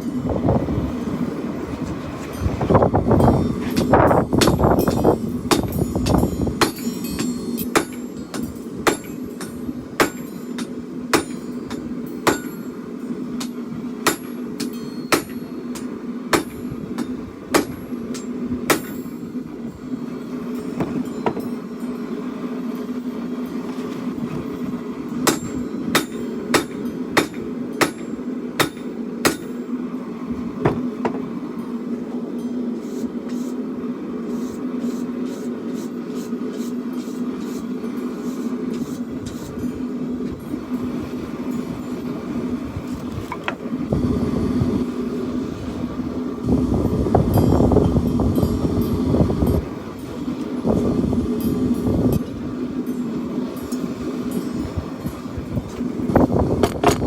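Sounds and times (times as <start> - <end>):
steady hum: 0.0 - 57.0
hammer striking steel: 3.2 - 12.8, 13.4 - 19.3, 25.2 - 29.7.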